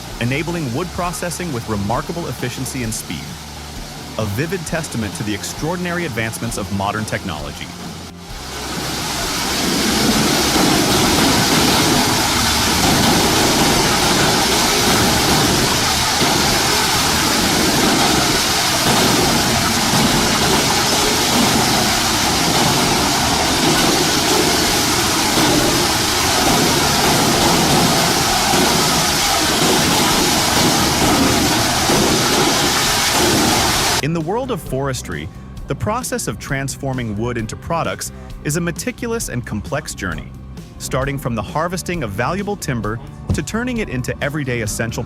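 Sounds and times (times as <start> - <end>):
engine drone: 0.0 - 34.0.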